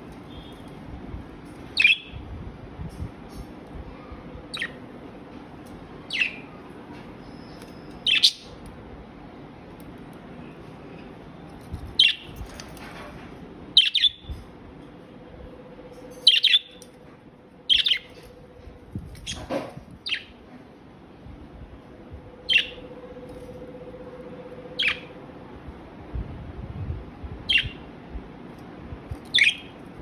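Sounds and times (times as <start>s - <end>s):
budgies chirping: 1.8s - 2.2s, 6.0s - 6.6s, 7.2s - 8.6s, 13.8s - 14.4s, 16.1s - 16.8s, 17.7s - 18.2s, 22.4s - 23.0s, 24.7s - 25.2s, 29.2s - 29.8s.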